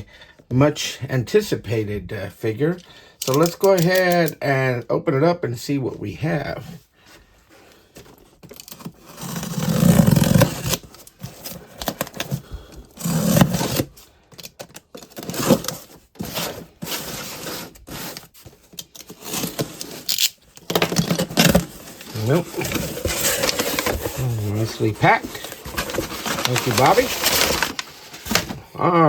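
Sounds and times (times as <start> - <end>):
cardboard box tearing and rustling: 8.2 - 28.6.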